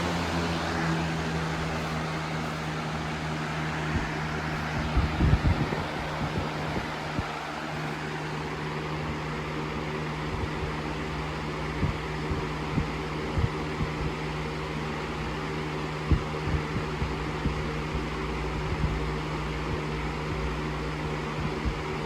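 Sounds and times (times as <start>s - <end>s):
low thumps: 0.0s - 8.0s
fan motor hum: 0.0s - 22.0s
rushing air from fan: 0.0s - 22.0s.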